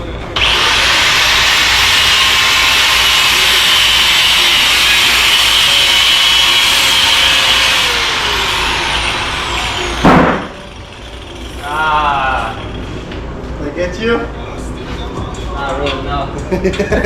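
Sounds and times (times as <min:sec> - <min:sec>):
angle grinder cutting metal: 0:00.4 - 0:12.8.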